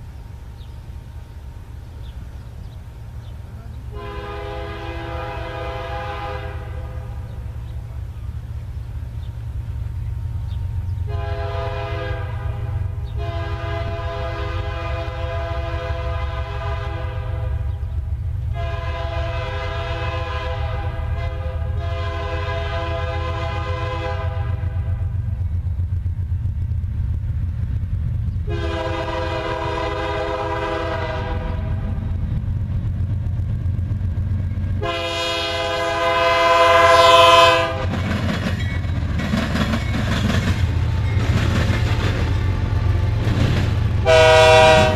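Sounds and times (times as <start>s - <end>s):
passing train rumble: 0.0s - 44.9s
locomotive air horn blasts: 3.9s - 7.4s, 11.1s - 17.8s, 18.5s - 25.1s, 28.5s - 32.0s, 34.8s - 38.0s, 44.0s - 44.9s.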